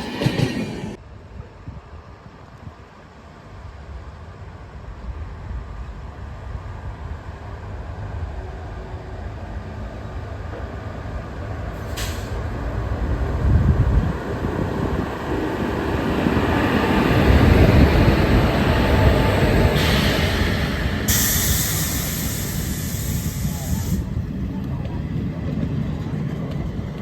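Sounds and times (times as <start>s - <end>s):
train wheels rumbling on rails: 0.0s - 1.0s, 2.4s - 27.0s
rushing hiss of passing train: 0.0s - 26.8s.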